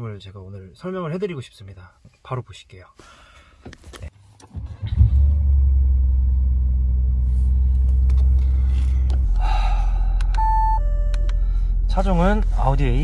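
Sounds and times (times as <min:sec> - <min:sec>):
diesel engine idling: 0:04.8 - 0:13.0.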